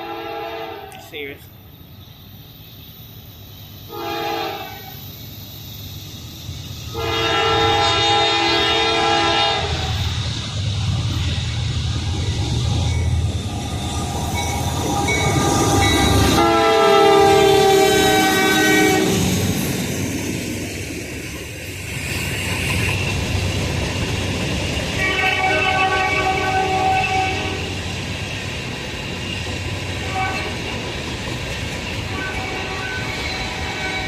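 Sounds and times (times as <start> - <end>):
locomotive air horn: 0.0 - 1.1, 3.9 - 5.0, 6.9 - 10.0, 16.3 - 19.2, 25.0 - 27.7, 30.0 - 30.6, 32.1 - 34.0
passing train rumble: 0.0 - 34.0.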